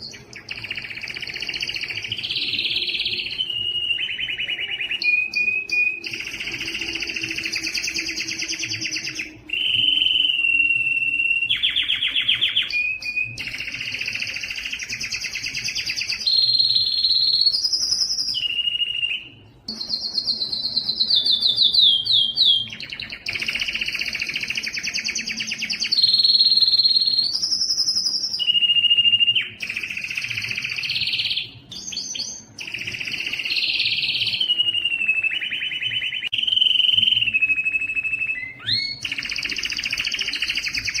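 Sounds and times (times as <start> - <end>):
canary singing trills and whistles: 0.0 - 41.0.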